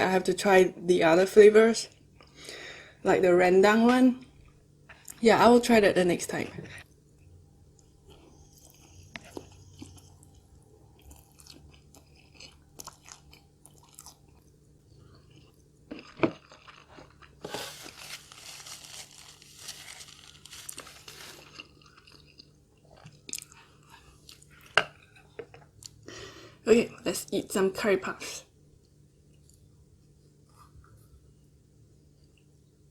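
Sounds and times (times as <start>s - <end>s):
chewing and crunching food: 6.8s - 26.1s.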